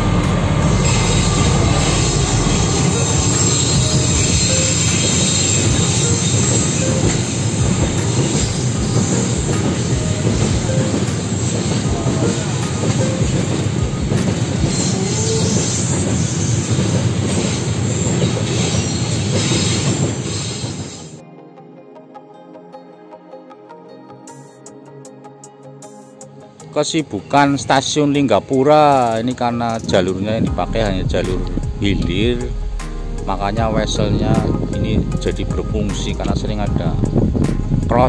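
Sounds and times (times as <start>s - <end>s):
steel wheels rumbling on rail: 0.0s - 21.2s, 33.9s - 35.6s.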